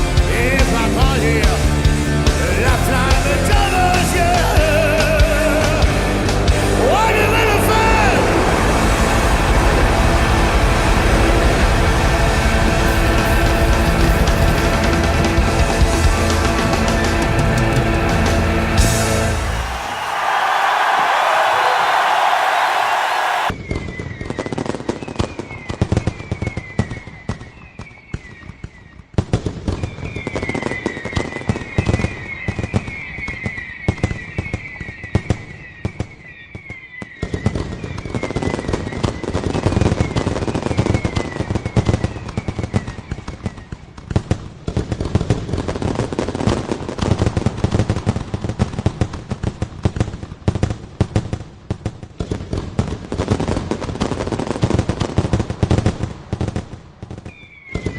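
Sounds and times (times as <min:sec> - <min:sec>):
fireworks bangs and crackle: 0:00.0 - 0:57.9
falling firework whistles: 0:08.2 - 0:15.4, 0:29.7 - 0:43.8, 0:57.2 - 0:57.9.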